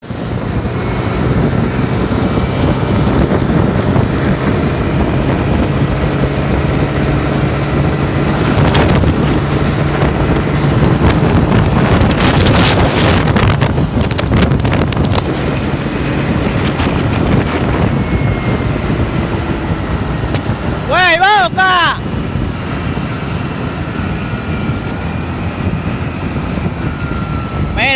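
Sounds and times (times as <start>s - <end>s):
motorcycle engine running: 0.0s - 20.9s
wind noise on microphone: 0.0s - 27.9s.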